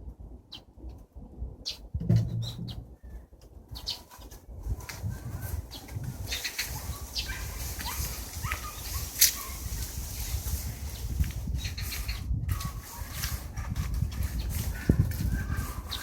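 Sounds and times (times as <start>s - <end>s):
birds chirping: 1.6s - 4.3s, 5.3s - 13.3s.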